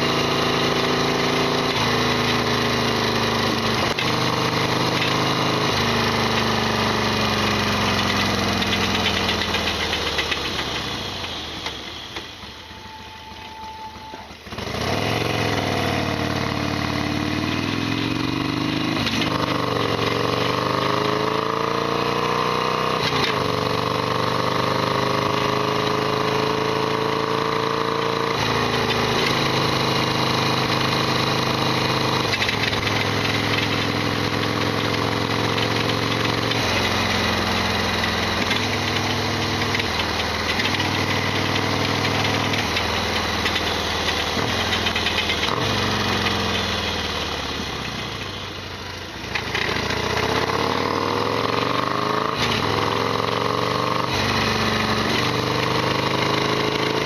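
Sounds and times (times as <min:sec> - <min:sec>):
motorcycle engine running: 0:00.0 - 0:13.4, 0:14.1 - 0:57.0
rattly mechanical clatter: 0:38.4 - 0:45.6.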